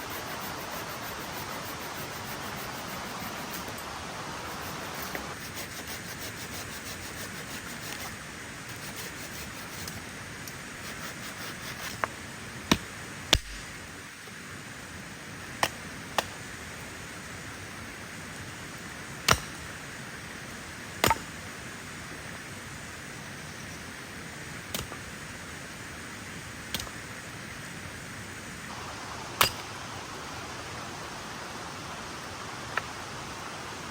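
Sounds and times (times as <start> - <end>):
rain falling: 11.6 - 33.9.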